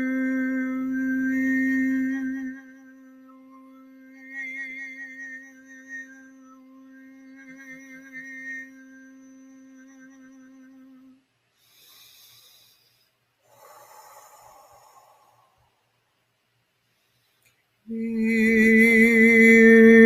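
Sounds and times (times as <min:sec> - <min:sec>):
woman humming a long note: 0:00.0 - 0:11.2, 0:17.9 - 0:20.0
person breathing: 0:11.6 - 0:15.9, 0:16.8 - 0:17.6.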